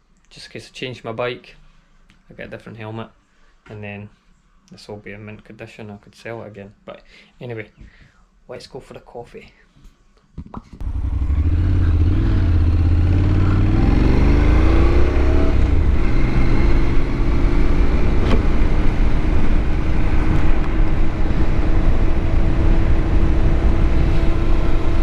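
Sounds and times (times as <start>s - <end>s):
motorcycle engine pulling away: 10.8s - 25.0s
wind rushing over microphone: 13.6s - 25.0s.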